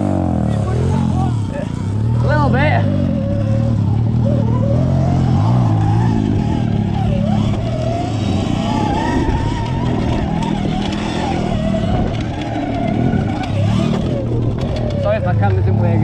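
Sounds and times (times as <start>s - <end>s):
dirt bike engines running: 0.0s - 16.0s.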